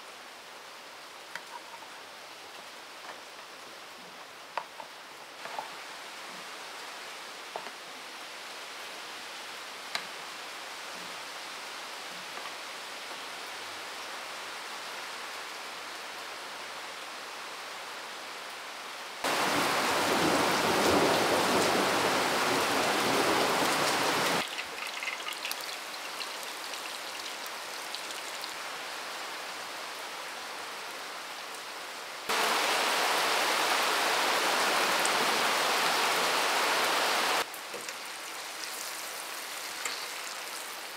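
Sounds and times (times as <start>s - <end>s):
rushing water: 18.5s - 40.9s.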